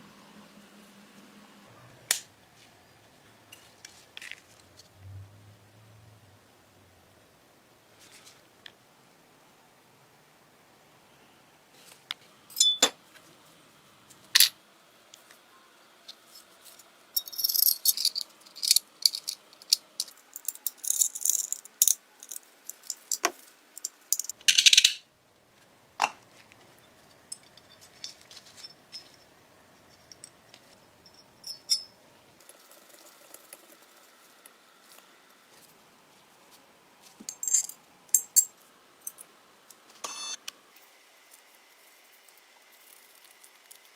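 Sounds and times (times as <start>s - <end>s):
metal parts clicking and clinking: 17.2s - 25.0s, 29.9s - 32.0s, 37.3s - 39.3s.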